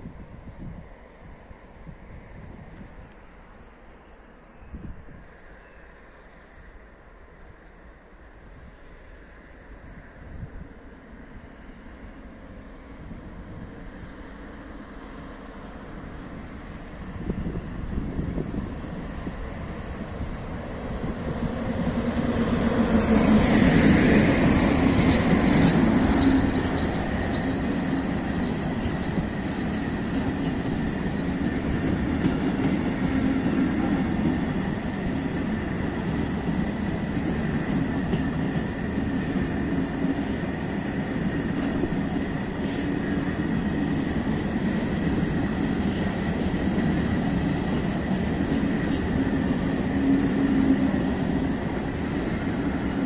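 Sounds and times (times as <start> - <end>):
electric locomotive passing: 0.0 - 53.0
wagons rolling on rails: 20.1 - 53.0.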